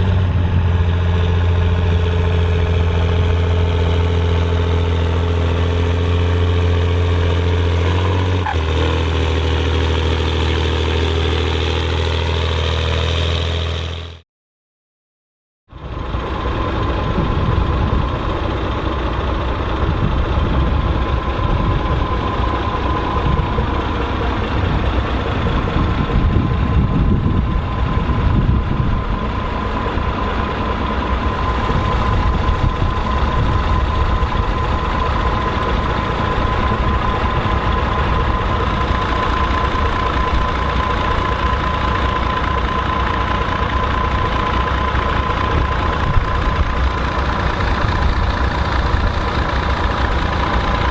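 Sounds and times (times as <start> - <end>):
tractor diesel engine: 0.0 - 14.2, 15.7 - 50.9
high whine: 19.6 - 50.9.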